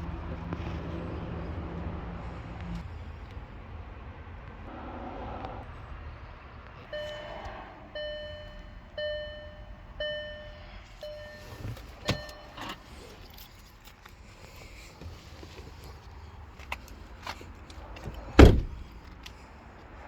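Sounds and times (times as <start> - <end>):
car warning chime: 6.8 - 13.2.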